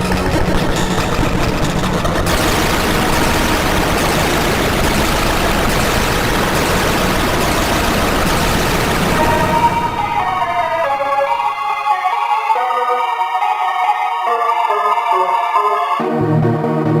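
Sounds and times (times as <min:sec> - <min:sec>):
engine-like rumbling: 0:00.0 - 0:11.4.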